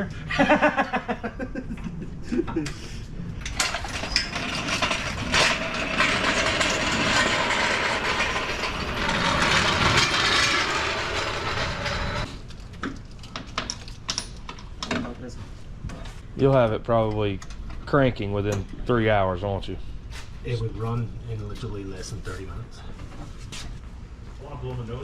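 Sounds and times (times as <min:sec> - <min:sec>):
shop tool running: 0:03.5 - 0:12.3.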